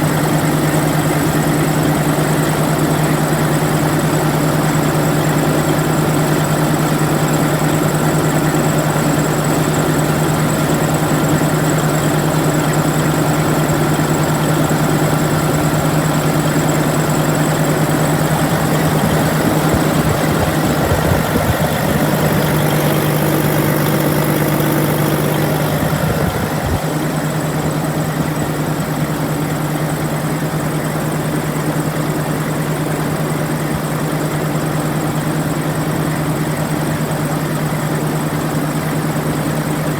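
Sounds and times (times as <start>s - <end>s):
diesel engine idling: 0.0s - 29.2s.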